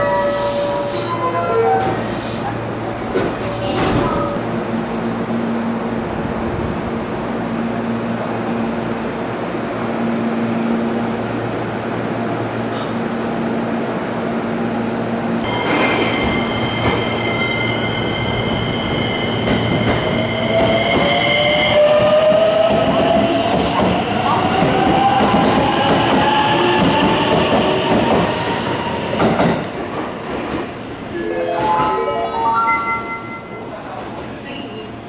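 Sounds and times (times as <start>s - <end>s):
high squeal: 15.4s - 21.9s.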